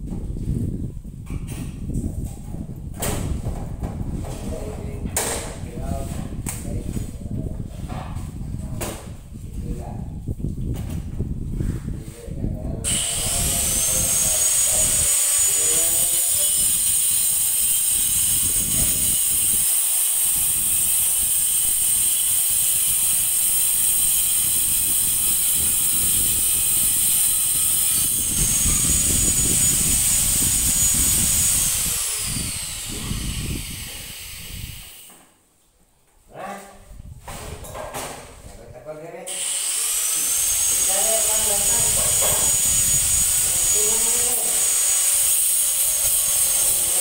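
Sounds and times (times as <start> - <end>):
high-pitched motor whine: 12.9 - 35.0, 39.4 - 47.0.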